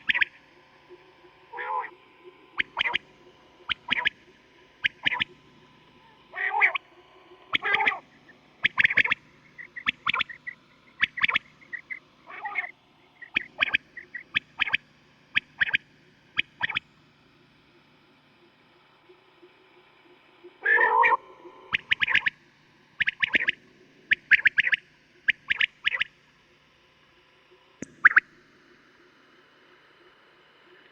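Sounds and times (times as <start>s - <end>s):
quail calling: 1.6s - 2.0s, 2.6s - 3.0s, 3.7s - 4.2s, 4.8s - 5.3s, 6.0s - 6.8s, 7.5s - 8.0s, 8.6s - 14.8s, 16.4s - 16.8s, 20.6s - 22.3s, 23.0s - 26.1s, 28.0s - 28.2s.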